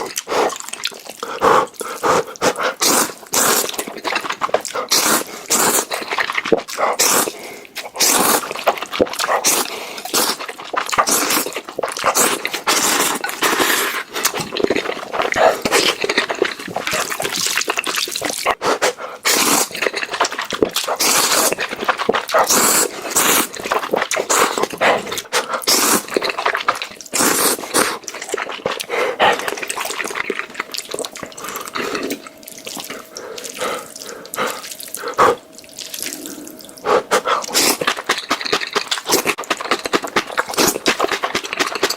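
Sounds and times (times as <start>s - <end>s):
noodle slurping and chewing: 0.0s - 41.9s.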